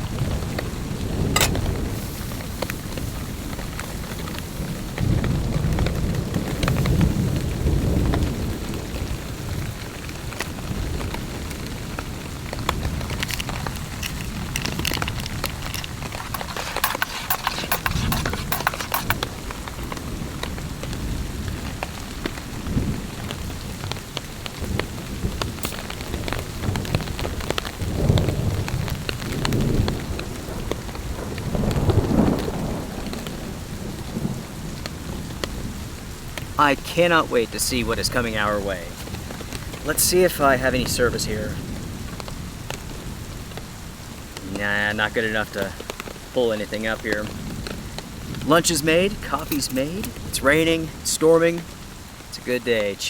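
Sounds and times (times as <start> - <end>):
heavy rain on a tarp: 0.0 - 16.3, 19.2 - 53.0
low rolling thunder: 0.1 - 14.6, 20.0 - 36.6.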